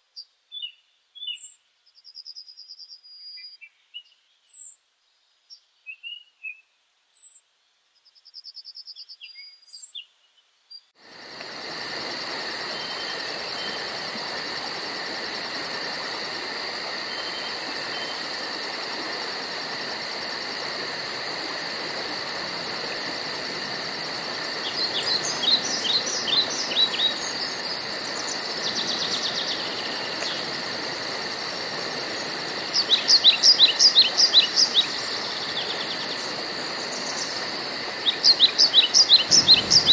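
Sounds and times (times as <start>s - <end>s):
woodland birds chirping: 8.0s - 10.9s, 24.6s - 30.5s, 38.0s - 39.9s
insects chorus pulsing: 11.0s - 39.9s.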